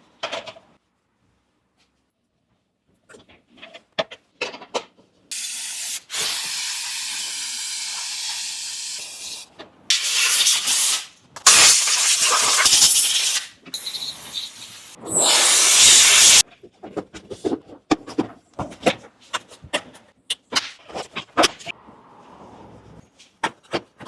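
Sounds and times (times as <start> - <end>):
loud hissing spray: 5.3 - 16.4.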